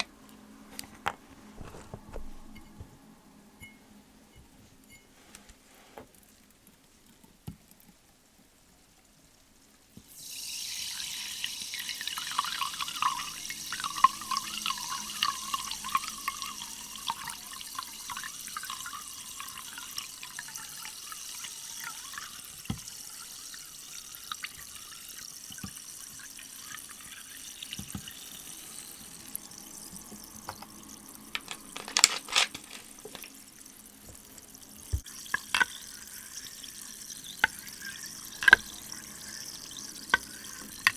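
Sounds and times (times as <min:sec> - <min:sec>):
liquid hissing and crackling: 0:09.6 - 0:40.9.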